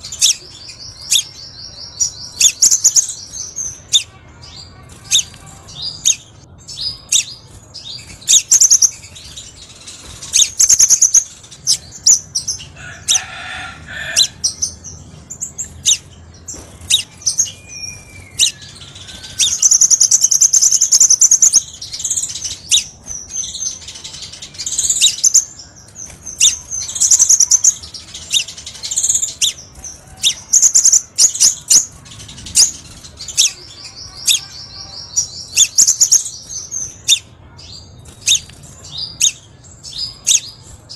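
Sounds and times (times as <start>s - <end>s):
bird chips and trills: 0.0s - 40.9s.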